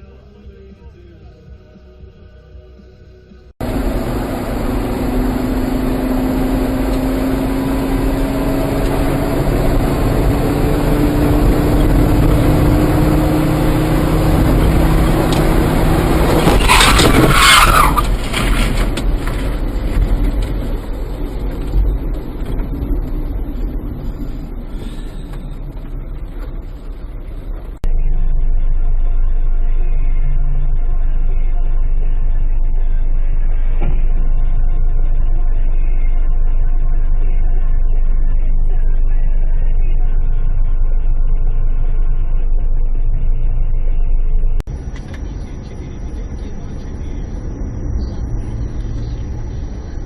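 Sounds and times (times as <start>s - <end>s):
loud harsh noise: 3.6s - 19.6s
vehicle engine accelerating: 3.6s - 50.0s.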